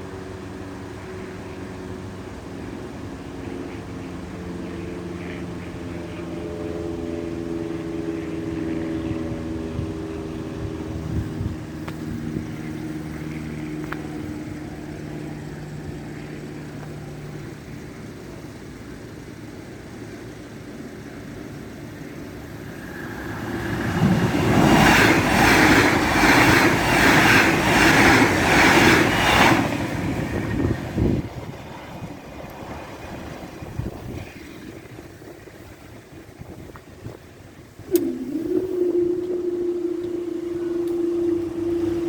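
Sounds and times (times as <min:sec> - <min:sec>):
train engine hum: 0:00.0 - 0:42.0
train rushing noise: 0:19.8 - 0:42.0.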